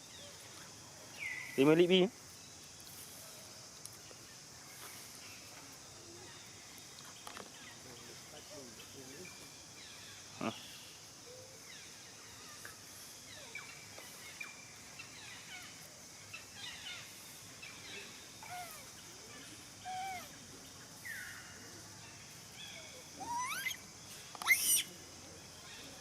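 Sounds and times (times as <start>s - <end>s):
steady high hiss: 0.0s - 26.0s
monkeys squeaking and chirping: 18.4s - 18.9s, 19.8s - 20.3s, 23.2s - 25.0s.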